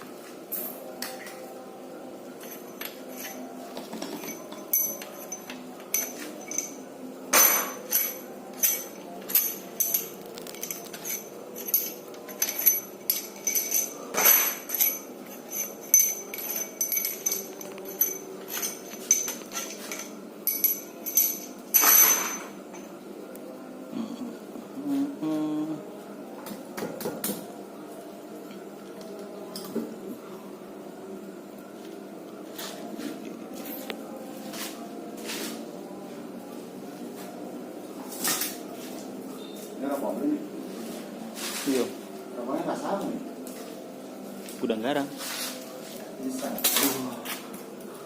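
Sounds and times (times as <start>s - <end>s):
tools clinking on engine metal: 2.4s - 22.8s.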